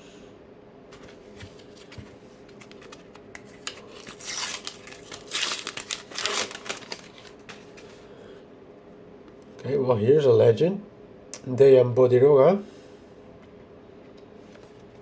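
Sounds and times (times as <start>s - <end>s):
wrapper tearing and crinkling: 2.5s - 7.9s.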